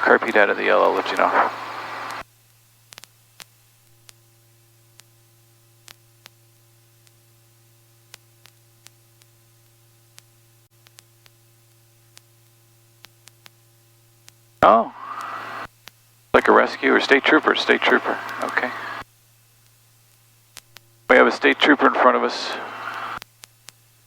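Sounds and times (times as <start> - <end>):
short irregular clicks: 0.0 - 2.2, 15.0 - 15.7, 16.4 - 19.0, 21.2 - 23.2
faint electrical hum: 0.0 - 10.6, 11.2 - 24.0.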